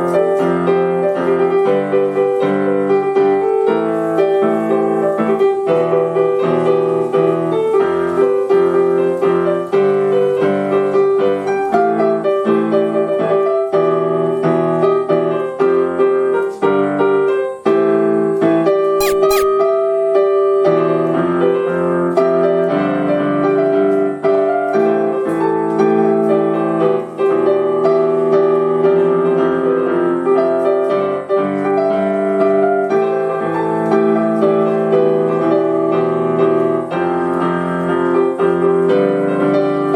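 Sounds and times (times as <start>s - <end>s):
piano melody over chords: 0.0s - 39.9s
brief sharp clicks: 19.0s - 19.5s.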